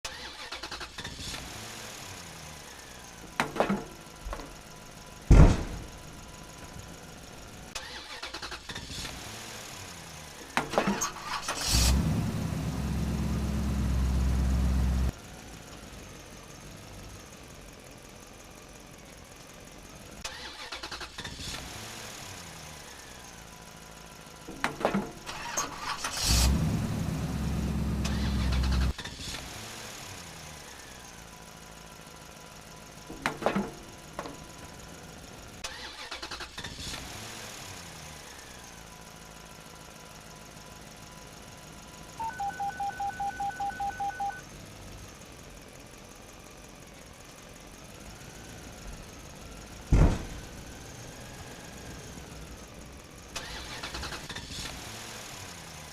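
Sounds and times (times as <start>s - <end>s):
engine starting and running: 0.0s - 55.9s
clicks and clunks: 33.1s - 34.4s.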